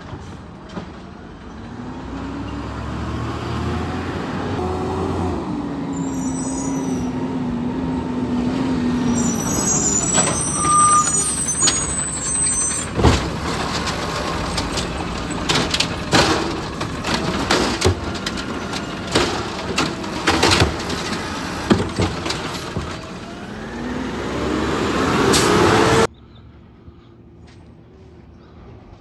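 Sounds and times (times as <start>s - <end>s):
garbage truck engine running: 4.6s - 26.1s
metallic knocks and clanks: 12.7s - 23.2s.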